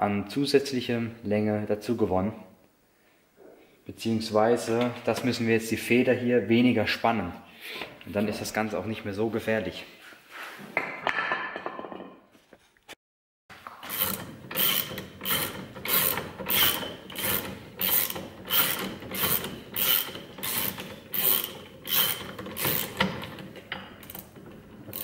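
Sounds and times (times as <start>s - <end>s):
hand ratchet clicking: 13.8s - 25.0s.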